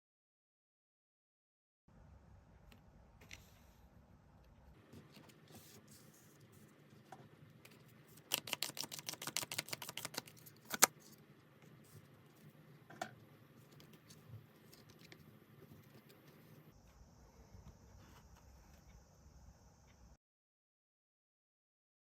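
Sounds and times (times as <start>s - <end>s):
cards clicking: 8.2s - 10.9s.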